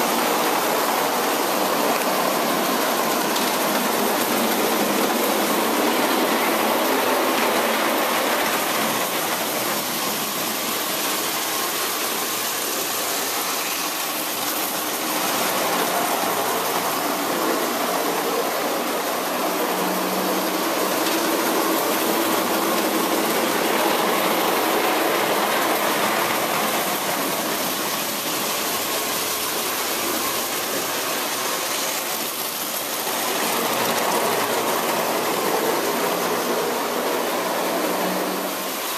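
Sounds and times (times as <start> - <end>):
toy train motor whirring rattle: 7.3 - 17.0, 20.4 - 38.0.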